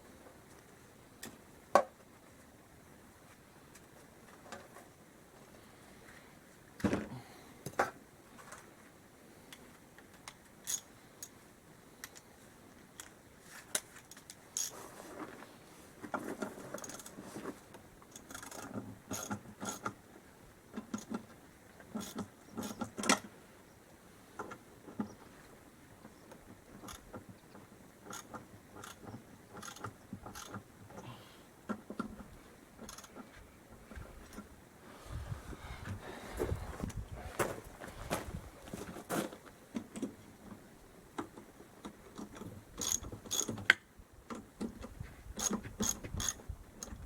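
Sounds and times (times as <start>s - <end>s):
ratchet ratcheting: 28.1s - 30.6s, 42.8s - 43.6s, 45.4s - 47.0s.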